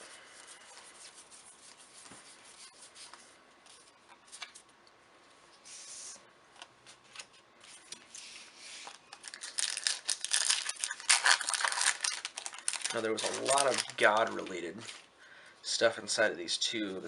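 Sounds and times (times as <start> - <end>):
foil wrapper crinkling and tearing: 9.0 - 15.0.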